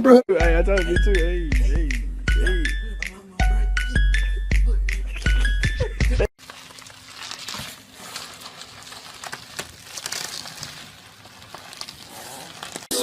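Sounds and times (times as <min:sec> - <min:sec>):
rustling: 0:06.4 - 0:13.0.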